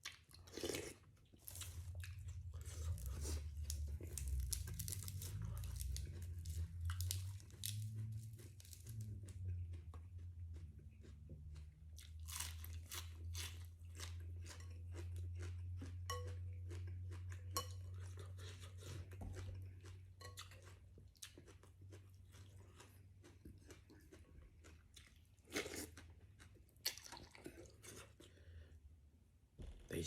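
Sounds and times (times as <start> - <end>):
chewing and crunching food: 0.0 - 28.9
low hum: 1.5 - 12.0.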